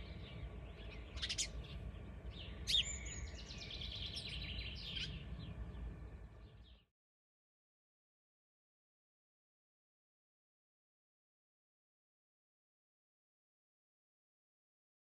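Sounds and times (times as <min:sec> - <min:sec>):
low outdoor rumble: 0:00.0 - 0:06.9
small songbirds chirping: 0:00.0 - 0:06.9.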